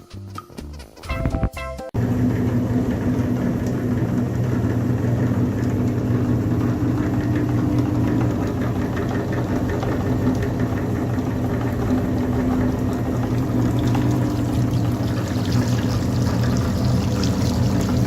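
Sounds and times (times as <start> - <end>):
jazzy music: 0.0 - 2.0.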